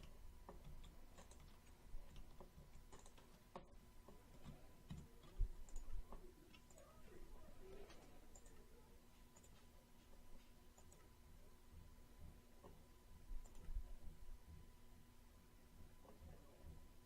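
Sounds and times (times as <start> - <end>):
steady background hum: 0.0 - 17.0
soft low thumps: 11.2 - 15.1.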